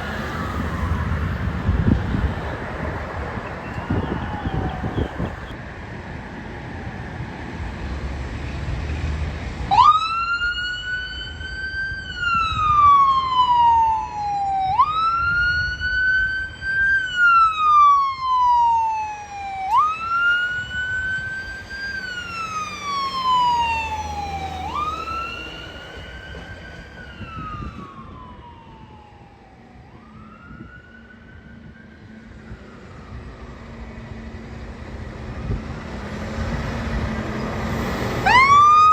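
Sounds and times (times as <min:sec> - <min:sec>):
emergency vehicle siren wailing: 0:00.0 - 0:08.0, 0:09.5 - 0:38.9
traffic rumble: 0:00.0 - 0:38.9.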